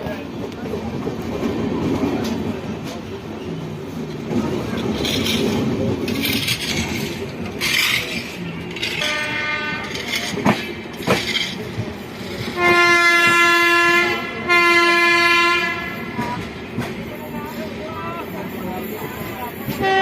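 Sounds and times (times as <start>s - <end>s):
locomotive horn blasts: 9.0s - 10.0s, 12.6s - 16.2s.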